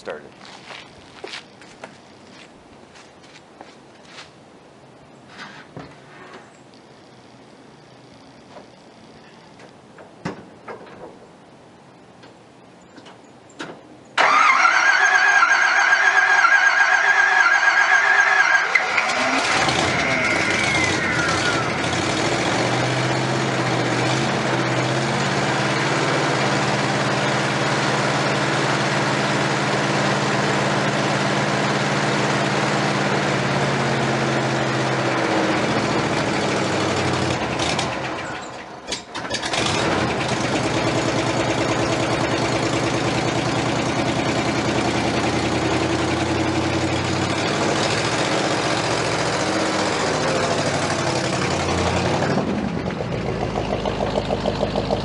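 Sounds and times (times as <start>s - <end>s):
car engine idling: 18.7s - 55.0s.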